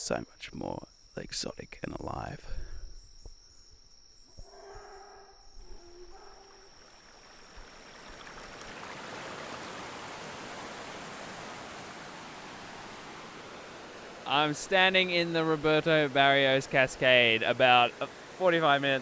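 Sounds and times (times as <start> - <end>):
thin insect whine: 0.0 - 19.0
faint animal calls: 4.2 - 8.8
waterfall rushing water: 7.2 - 19.0.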